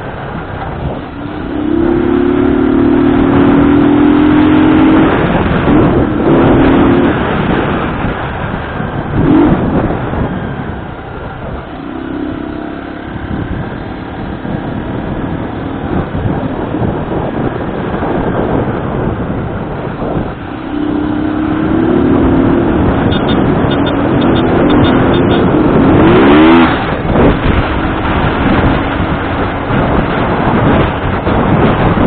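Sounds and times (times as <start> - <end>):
motor vehicle running: 0.0 - 32.0
wind noise on microphone: 0.0 - 32.0
steady pitched note: 1.1 - 3.9.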